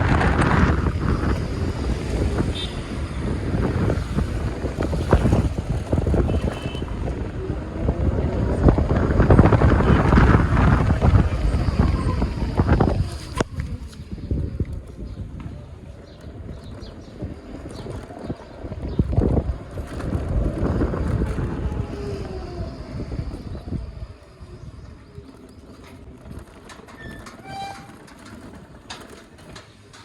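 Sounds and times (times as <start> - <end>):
road noise: 0.0 - 30.0
wind buffeting microphone: 0.0 - 30.0.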